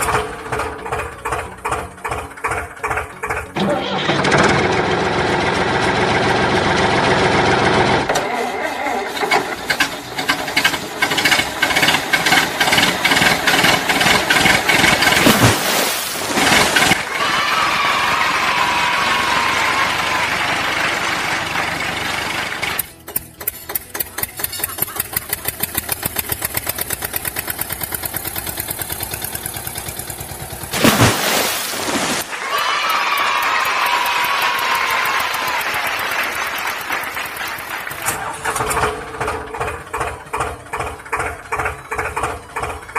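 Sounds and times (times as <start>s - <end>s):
tractor engine knocking: 0.0s - 15.3s, 19.5s - 30.7s, 33.2s - 42.9s.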